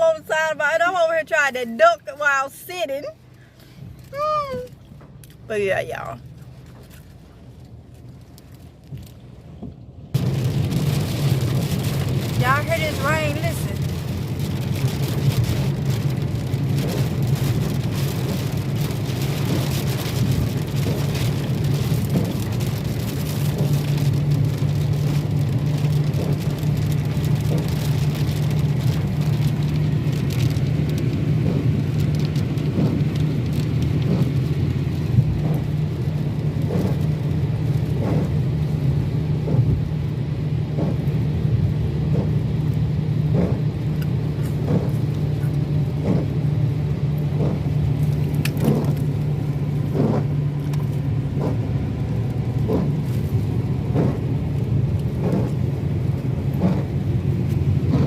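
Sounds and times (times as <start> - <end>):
car engine drone: 0.0 - 58.0
heavy rain on a car: 0.0 - 58.0.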